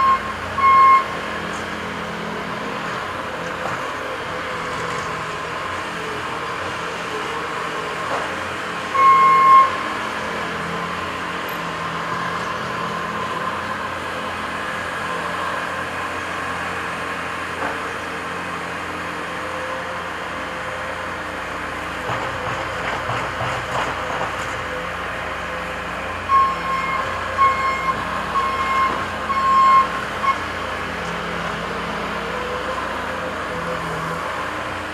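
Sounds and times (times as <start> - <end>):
diesel engines of heavy machines: 0.0 - 34.9
knocks and clunks: 22.0 - 24.6.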